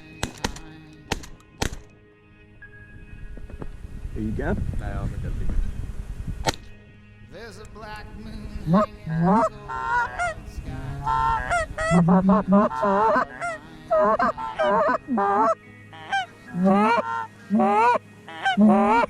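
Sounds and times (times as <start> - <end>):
geese honking: 8.4 - 19.0.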